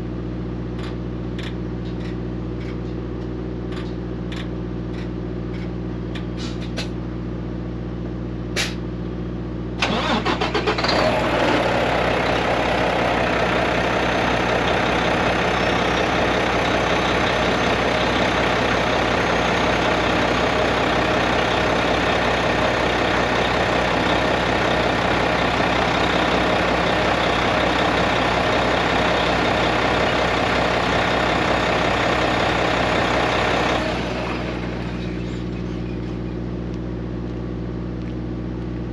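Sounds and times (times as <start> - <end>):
diesel truck engine cranking: 9.8 - 36.2
diesel engine idling: 9.8 - 37.0.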